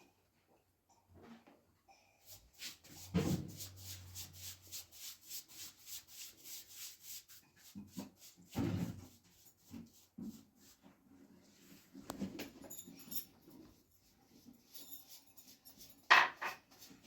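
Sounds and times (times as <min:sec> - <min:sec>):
rubbing strokes on hard surface: 0:02.2 - 0:11.0, 0:13.7 - 0:17.0.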